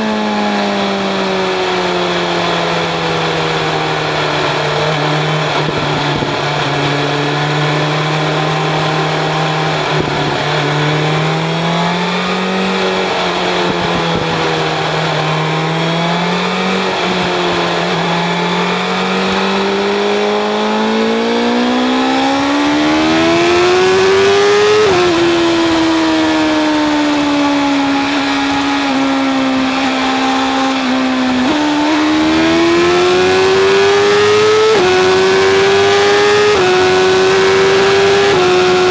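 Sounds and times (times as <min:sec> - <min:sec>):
motorcycle engine accelerating: 0:00.0 - 0:38.9
wind rush: 0:04.9 - 0:12.1, 0:12.7 - 0:18.3.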